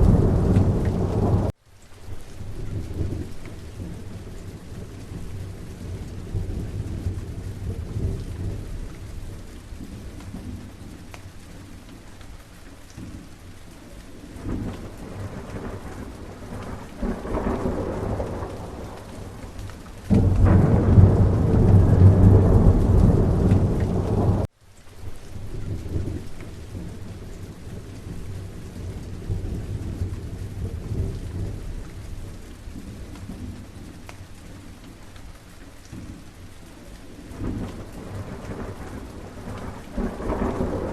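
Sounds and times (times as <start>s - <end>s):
thunder rumbling: 0.0s - 1.5s, 2.4s - 11.1s, 14.4s - 24.5s, 25.4s - 34.0s, 37.3s - 40.9s
steady rain falling: 0.0s - 40.9s.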